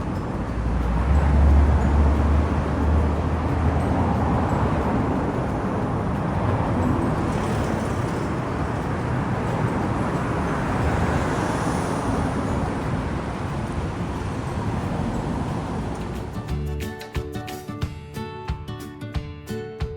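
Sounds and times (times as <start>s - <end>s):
city street traffic: 0.0s - 19.7s.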